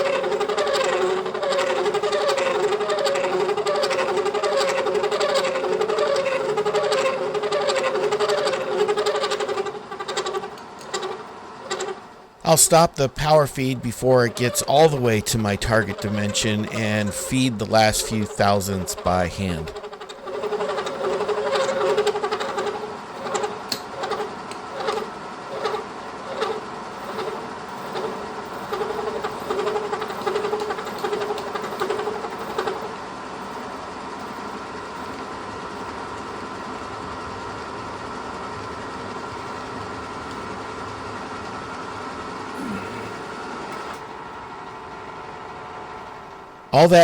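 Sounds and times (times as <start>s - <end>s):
milling machine hum: 0.0s - 32.8s
cutter ticking chatter: 12.5s - 19.8s.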